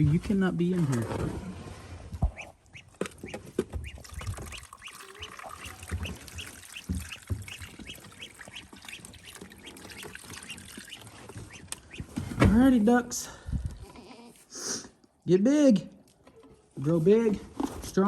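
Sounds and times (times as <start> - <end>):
ducks quacking: 2.2 - 12.3.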